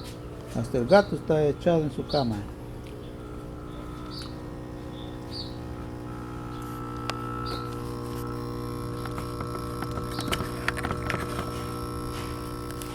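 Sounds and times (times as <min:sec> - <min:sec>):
air compressor humming: 0:00.0 - 0:12.9.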